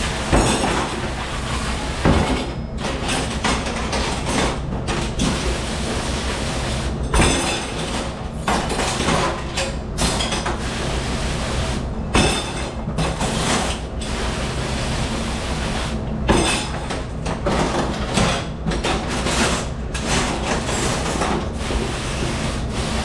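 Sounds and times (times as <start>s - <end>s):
dishes and racks clattering: 0.0s - 5.7s, 7.0s - 10.8s, 12.1s - 13.9s, 16.2s - 23.0s.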